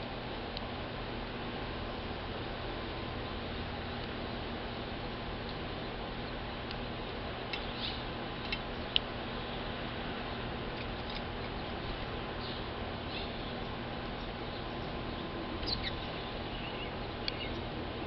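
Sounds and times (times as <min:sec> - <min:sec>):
small bird chirping: 0:07.5 - 0:09.8, 0:12.4 - 0:17.7.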